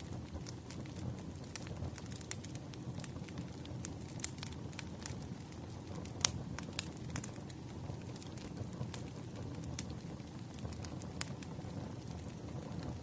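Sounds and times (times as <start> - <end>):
sharp pops of fire: 0.0 - 13.0
wood fire crackling: 0.0 - 13.0.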